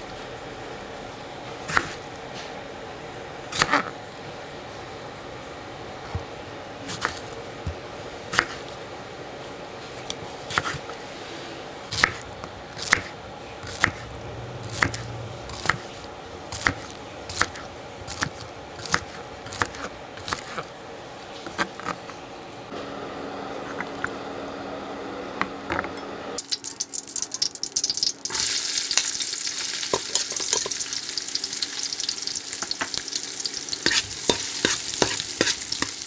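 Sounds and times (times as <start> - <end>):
steady low hum: 0.0 - 26.4.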